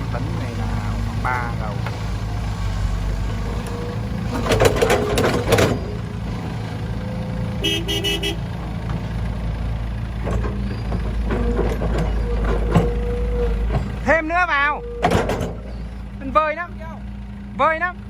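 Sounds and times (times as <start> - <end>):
heavy diesel machinery running: 0.0 - 18.0
dirt and rocks clattering into truck: 3.6 - 6.1, 10.2 - 15.8
short horn toots: 7.6 - 8.5.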